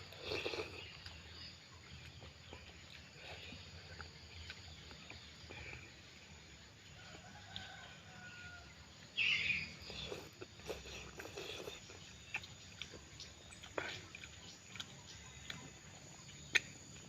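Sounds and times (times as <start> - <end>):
chewing clicks: 0.0 - 5.9, 9.5 - 17.0
chicken crowing: 7.0 - 8.7.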